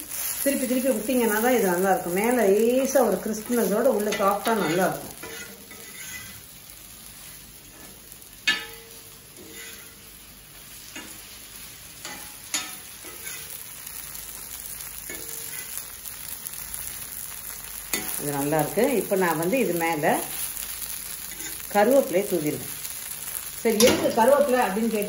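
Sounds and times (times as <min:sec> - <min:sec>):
food sizzling in oil: 0:00.0 - 0:25.0
metal spatula scraping griddle: 0:03.4 - 0:06.4, 0:07.6 - 0:10.1, 0:12.0 - 0:13.6, 0:15.0 - 0:15.8, 0:21.3 - 0:21.7.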